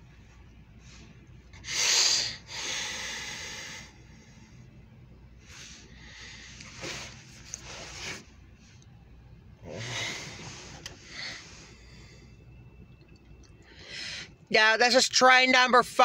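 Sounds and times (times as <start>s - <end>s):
person breathing: 0.8s - 4.7s, 5.4s - 8.3s, 9.6s - 12.5s, 13.6s - 14.4s
person snorting: 9.6s - 11.4s.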